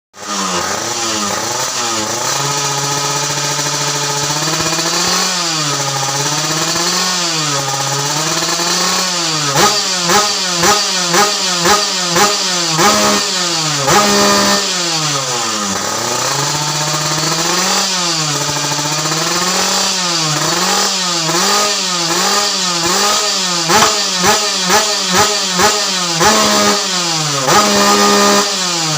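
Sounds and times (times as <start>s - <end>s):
motorcycle engine revving: 0.2s - 28.9s.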